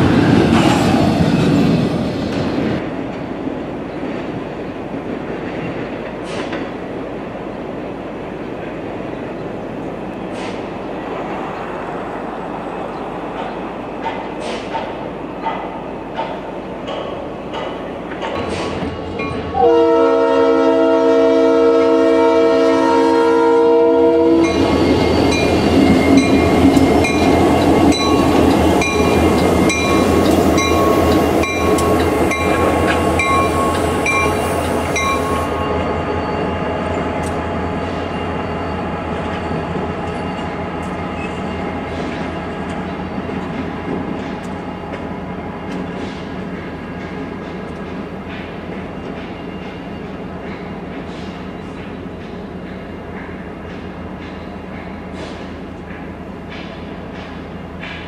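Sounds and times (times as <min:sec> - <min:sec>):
train engines and wheels passing: 0:00.0 - 0:58.0
locomotive horn blast: 0:19.5 - 0:24.8
crossing bell ringing: 0:24.4 - 0:46.0.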